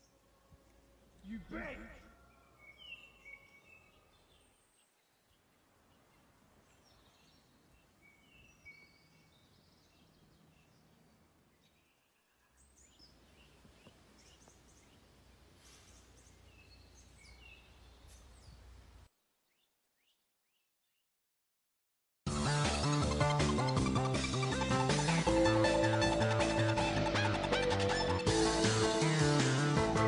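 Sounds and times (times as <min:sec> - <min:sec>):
birds chirping: 0:00.0 - 0:20.6, 0:22.3 - 0:30.0.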